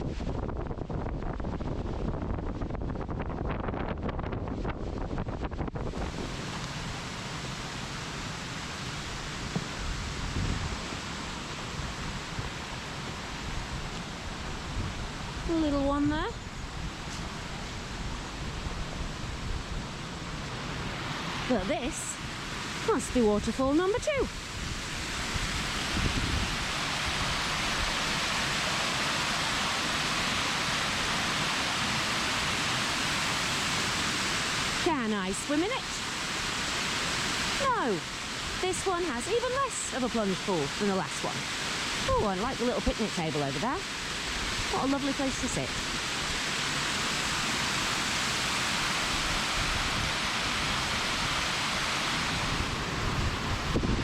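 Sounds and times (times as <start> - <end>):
wind buffeting microphone: 0.0 - 8.2, 9.0 - 32.7, 48.8 - 54.0
small waterfall splashing into pool: 22.2 - 53.4.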